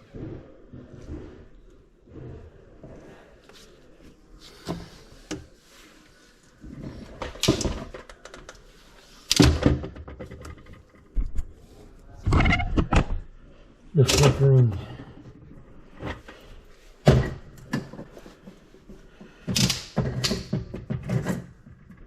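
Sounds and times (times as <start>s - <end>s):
objects knocking and clattering: 6.6s - 8.6s, 9.3s - 11.5s, 17.0s - 22.0s.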